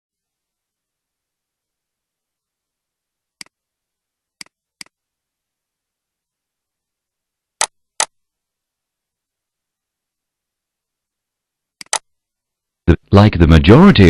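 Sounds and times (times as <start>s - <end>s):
short sharp clicks: 11.8s - 12.1s.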